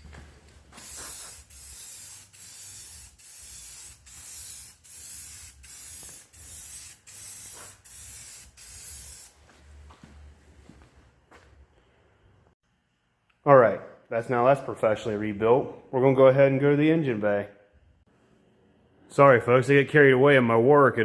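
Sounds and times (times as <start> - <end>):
spray hissing in bursts: 0.7 - 9.3.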